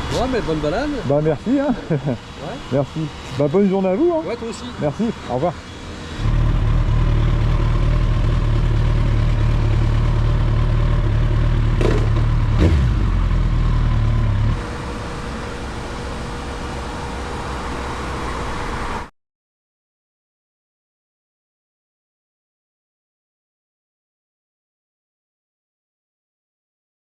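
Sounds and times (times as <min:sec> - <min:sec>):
motorcycle engine running: 0:06.2 - 0:16.5.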